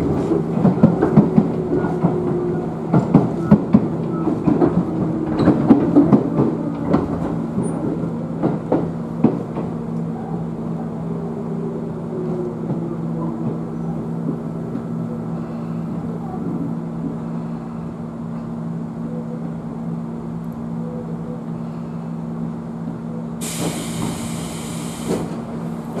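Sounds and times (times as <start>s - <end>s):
train equipment hum: 0.0s - 26.0s
compressed air hiss: 23.4s - 25.4s.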